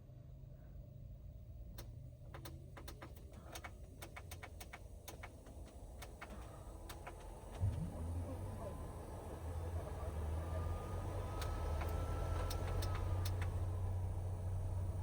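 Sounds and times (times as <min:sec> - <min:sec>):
sharp clicks: 0:01.8 - 0:07.6.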